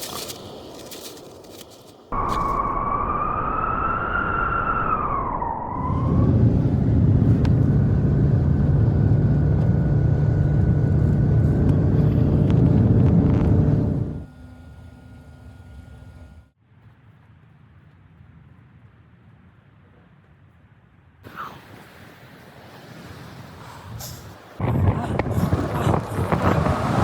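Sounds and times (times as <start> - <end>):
blizzard wind roaring: 0.0 - 14.3, 21.2 - 27.0.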